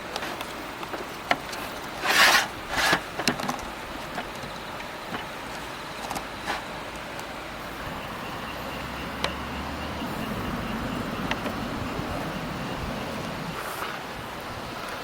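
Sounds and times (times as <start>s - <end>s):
steady background noise: 0.0s - 15.0s
low hum: 4.4s - 13.6s.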